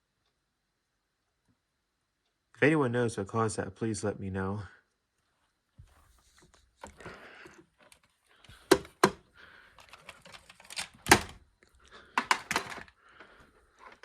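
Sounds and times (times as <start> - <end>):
sharp clicks and knocks: 7.8 - 9.2, 12.0 - 12.9.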